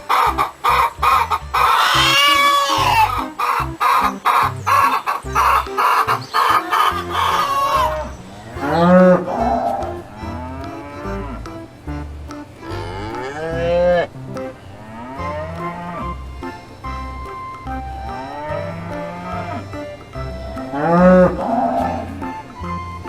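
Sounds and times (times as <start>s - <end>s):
chicken clucking: 0.0s - 22.8s
cow mooing: 1.7s - 3.2s, 6.4s - 12.0s, 12.6s - 16.2s, 18.1s - 19.8s, 20.6s - 22.4s.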